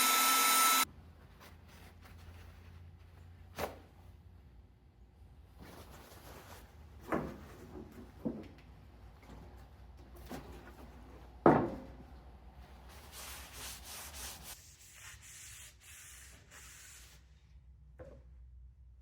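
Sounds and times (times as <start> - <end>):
rubbing or scraping strokes: 12.9 - 17.4.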